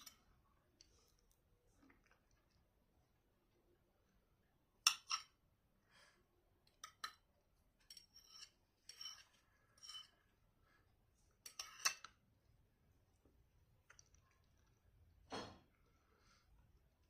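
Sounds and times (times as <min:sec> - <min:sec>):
cutlery clinking and scraping plate: 0:00.0 - 0:00.3, 0:04.9 - 0:05.4, 0:06.7 - 0:10.3, 0:11.4 - 0:12.2.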